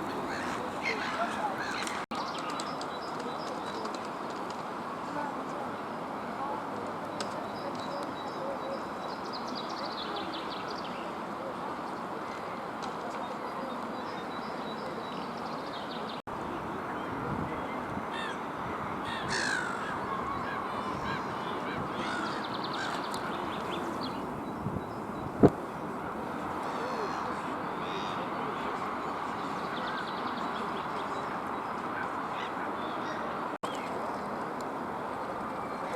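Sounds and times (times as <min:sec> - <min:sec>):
low background noise: 0:00.0 - 0:35.9
birds making harsh calls: 0:00.2 - 0:02.6, 0:19.1 - 0:24.2.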